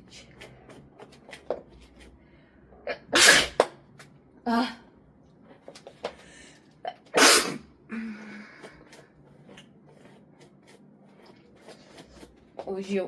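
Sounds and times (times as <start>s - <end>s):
woman sneezing: 7.2s - 7.7s.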